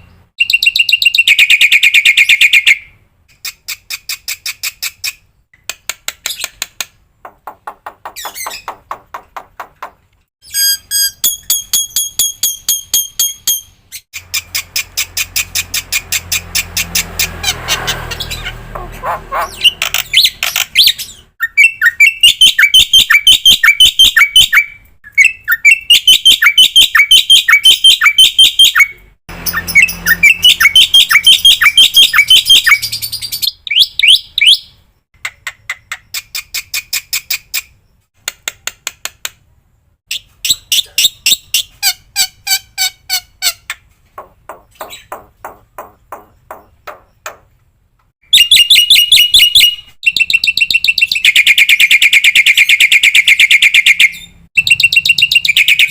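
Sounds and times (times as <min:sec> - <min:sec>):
fast ticking bird calls: 0:00.0 - 0:37.8, 0:40.1 - 0:47.5, 0:48.2 - 0:55.9.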